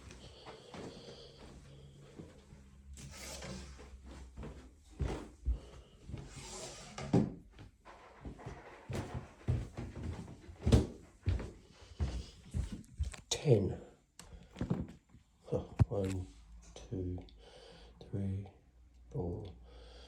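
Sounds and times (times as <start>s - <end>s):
knocks and thuds in a room: 7.2s - 11.4s.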